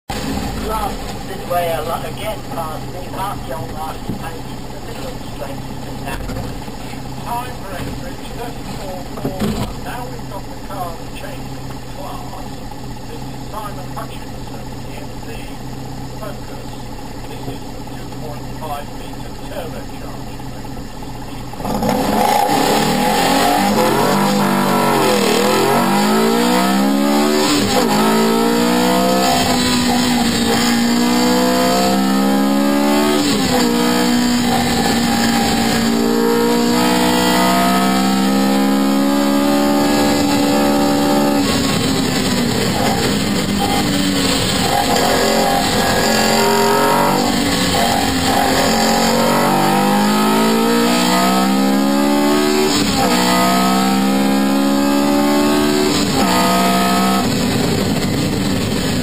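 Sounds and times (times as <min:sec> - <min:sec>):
car engine revving through gears: 0:21.5 - 0:59.0.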